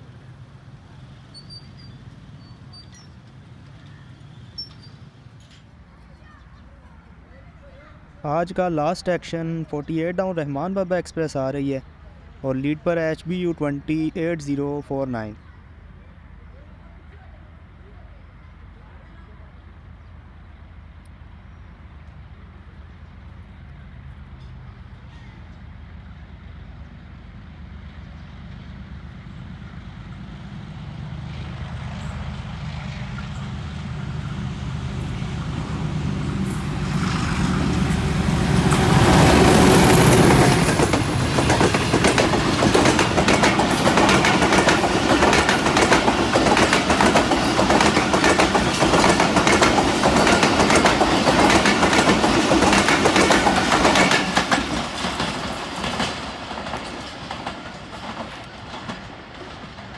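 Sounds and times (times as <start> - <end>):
diesel locomotive engine: 0.0 - 59.9
wheels clacking over rail joints: 31.7 - 59.9.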